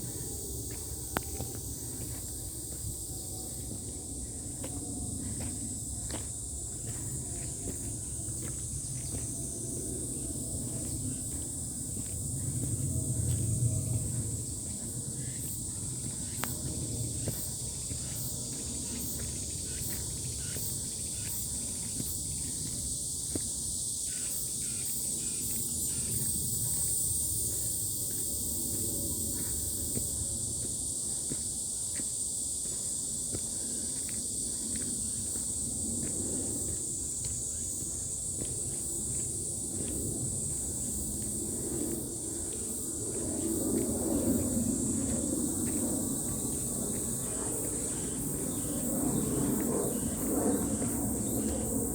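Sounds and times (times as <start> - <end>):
insects chirping: 0.0 - 51.9.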